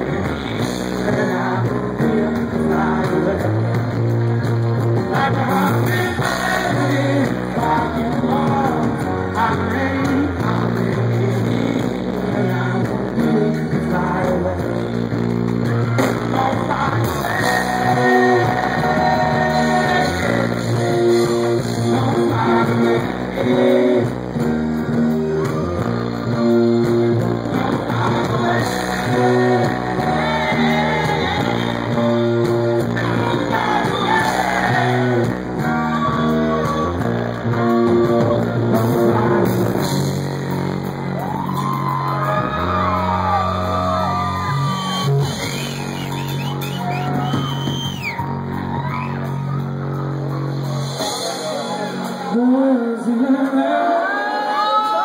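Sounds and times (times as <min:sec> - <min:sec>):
bass line: 0:00.0 - 0:54.7
electric guitar: 0:00.0 - 0:55.0
person singing: 0:05.0 - 0:15.0, 0:15.7 - 0:24.2, 0:25.3 - 0:40.1, 0:50.7 - 0:55.0.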